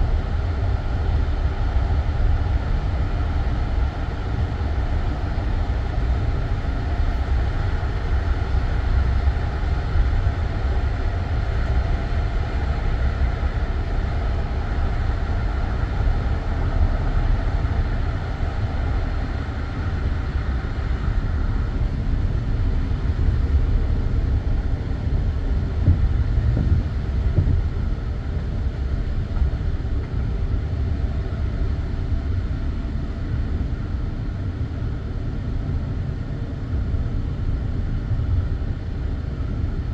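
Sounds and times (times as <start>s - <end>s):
train carriage rumbling on rails: 22.2s - 32.8s.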